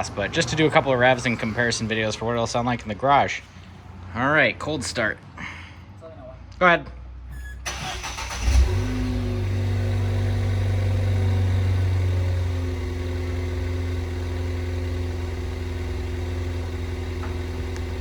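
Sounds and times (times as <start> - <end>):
car engine starting and idling: 0.0 - 2.9, 7.4 - 18.0.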